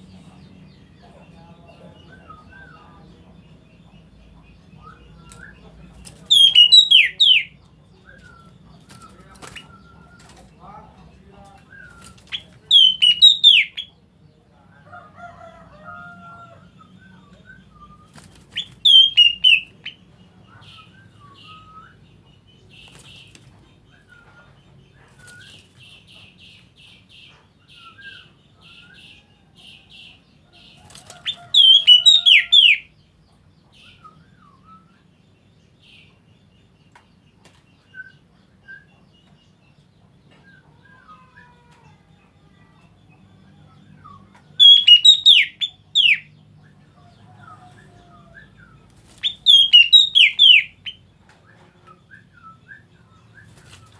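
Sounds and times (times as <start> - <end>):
bird singing whistled notes: 6.3 - 8.5, 11.7 - 13.9, 17.0 - 19.8, 31.3 - 32.9, 44.6 - 46.3, 49.2 - 51.0.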